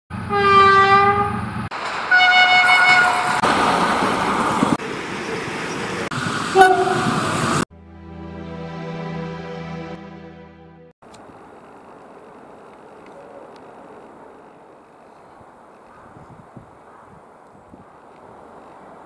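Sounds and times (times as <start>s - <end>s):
locomotive horn blast: 0.1s - 1.5s, 2.1s - 3.4s, 6.5s - 10.9s
train running noise: 0.1s - 7.6s
music with sustained chord: 7.7s - 11.0s.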